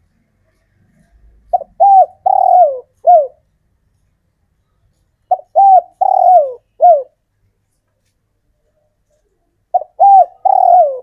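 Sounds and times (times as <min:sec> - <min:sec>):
dove cooing: 0:01.5 - 0:03.4, 0:05.3 - 0:07.2, 0:09.7 - 0:11.0.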